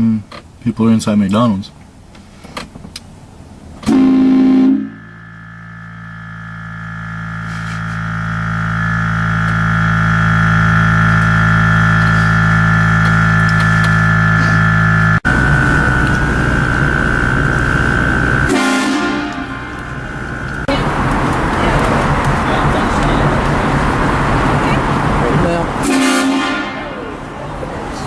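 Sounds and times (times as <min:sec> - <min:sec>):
train horn blasting: 0:03.9 - 0:05.0, 0:17.9 - 0:20.6, 0:25.8 - 0:27.1.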